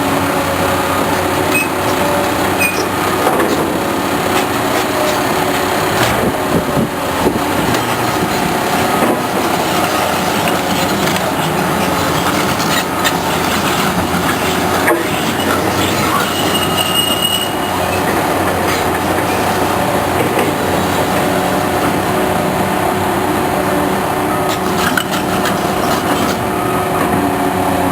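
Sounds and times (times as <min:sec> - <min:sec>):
diesel engine under load: 0:00.0 - 0:27.9
high squeal: 0:01.4 - 0:03.7, 0:07.9 - 0:22.1.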